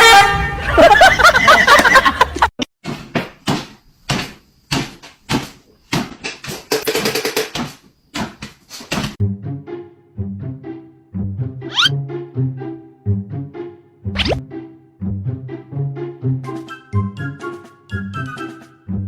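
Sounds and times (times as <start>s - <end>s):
music with a tune: 14.2s - 19.0s.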